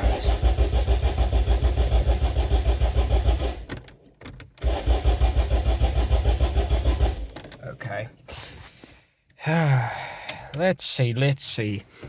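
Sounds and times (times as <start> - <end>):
car engine cranking: 0.0 - 8.4.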